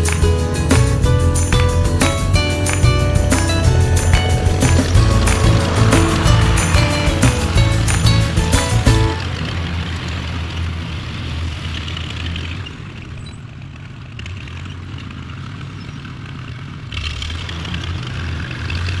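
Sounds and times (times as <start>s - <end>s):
tractor engine running: 0.0s - 9.6s.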